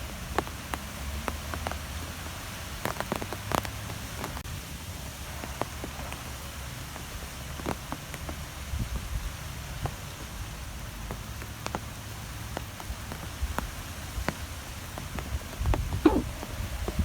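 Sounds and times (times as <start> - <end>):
sharp ticks and patters: 9.2 - 17.0.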